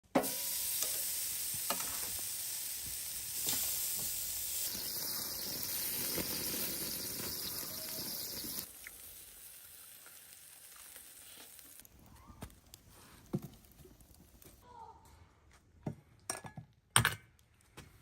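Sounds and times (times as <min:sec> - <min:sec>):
steak sizzling on a grill: 0:00.2 - 0:12.1.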